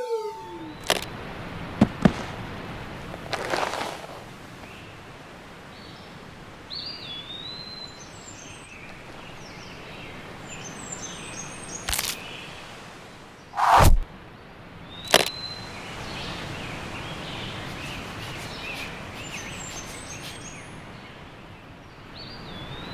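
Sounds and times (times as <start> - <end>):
bird-like chirping: 0.0 - 1.1
background hiss: 0.0 - 22.9
sharp clicks: 0.8 - 1.1, 15.1 - 15.4
sharp snap: 13.6 - 14.0, 15.1 - 15.4
whooshing sweep: 13.6 - 14.0.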